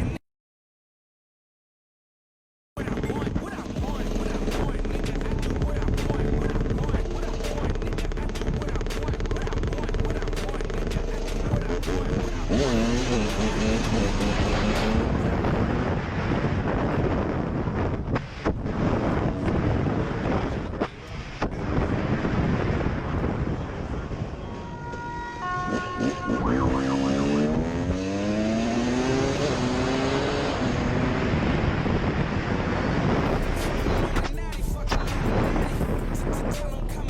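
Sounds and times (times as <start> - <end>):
wind noise on microphone: 2.8 - 37.0
motorcycle engine accelerating: 3.0 - 17.4, 25.6 - 37.0.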